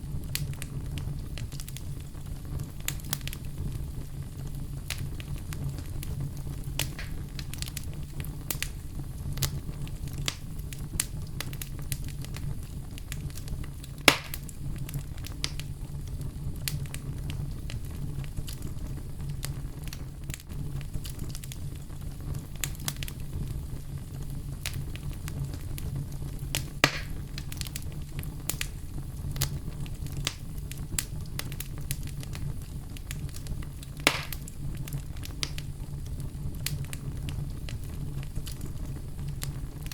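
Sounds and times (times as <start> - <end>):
bonfire crackling: 0.0 - 39.9
fire popping: 0.0 - 39.9.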